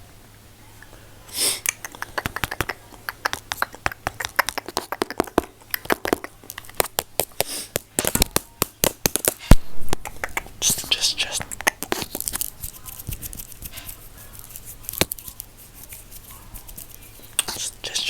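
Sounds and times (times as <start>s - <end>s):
breathy hisses: 1.0s - 1.7s
wet mouth clicks and pops: 1.6s - 7.5s, 9.9s - 10.5s, 11.3s - 12.4s.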